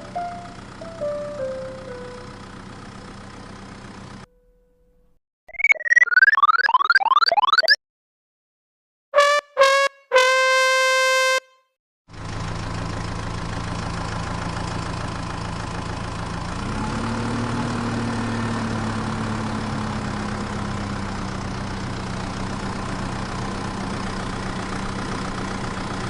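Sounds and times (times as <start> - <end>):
vehicle horn honking: 9.2 - 11.7.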